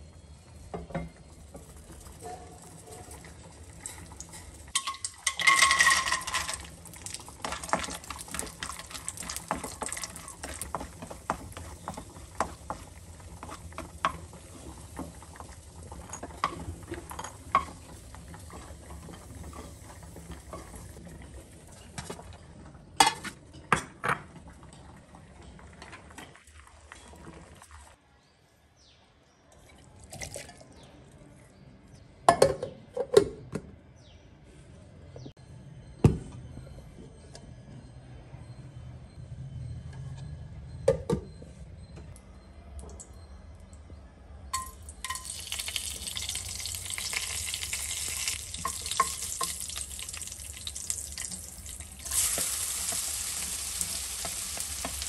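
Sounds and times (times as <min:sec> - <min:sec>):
cashews sizzling in hot oil: 0:03.2 - 0:21.0, 0:44.8 - 0:55.0
steel dishes clattering: 0:03.7 - 0:10.7.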